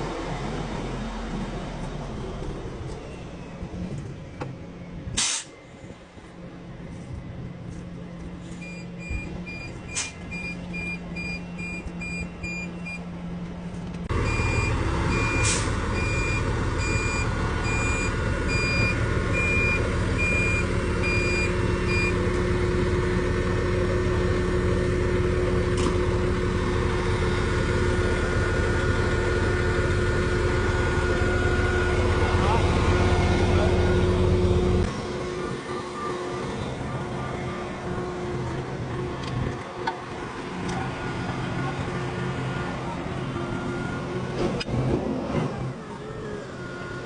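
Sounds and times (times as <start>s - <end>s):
crane engine running: 0.0s - 47.0s
reversing alarm beeping: 8.5s - 13.1s, 14.1s - 22.2s.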